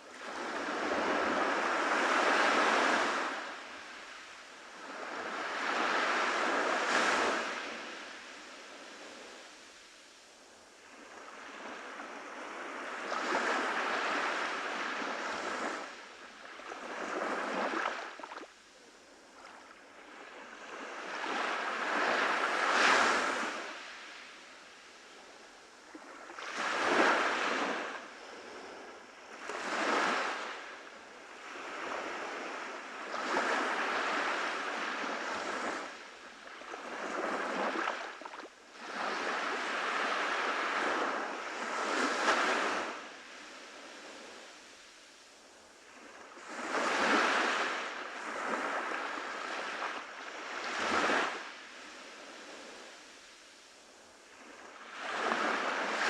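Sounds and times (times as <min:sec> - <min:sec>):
ocean waves breaking on beach: 0:00.0 - 0:56.0.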